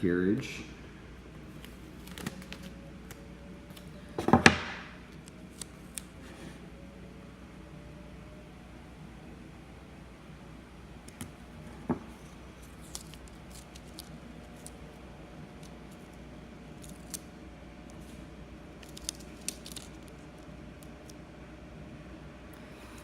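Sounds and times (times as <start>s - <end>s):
low room hum: 0.0s - 23.0s
sticker sheet crinkling: 12.2s - 17.3s, 18.8s - 20.9s.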